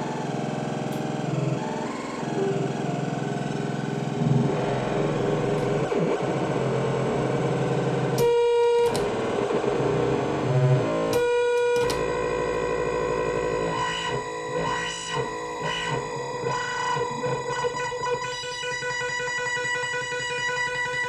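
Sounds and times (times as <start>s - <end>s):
bright buzzy synth notes: 0.0s - 21.0s
distorted synthesizer tone: 0.0s - 21.0s.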